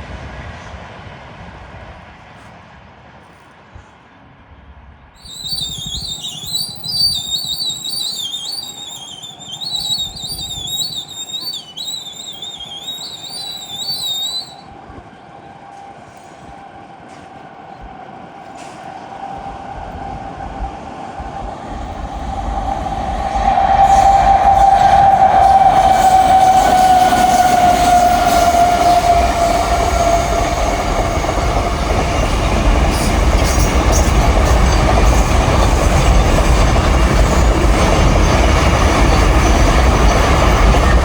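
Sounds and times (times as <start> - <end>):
train rumble and hum: 0.0 - 41.0
high wavering whistle-like call: 5.2 - 14.7.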